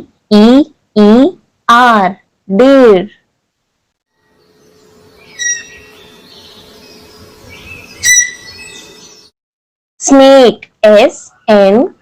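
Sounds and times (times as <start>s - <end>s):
faint outdoor background: 0.0s - 9.4s, 10.0s - 12.0s
high-pitched animal calls: 5.3s - 6.1s, 7.8s - 8.9s.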